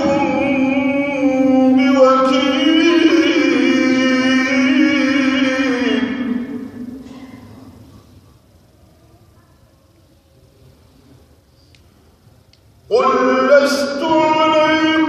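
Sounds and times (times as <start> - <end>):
man chanting melodically: 0.0 - 7.0, 12.9 - 15.0.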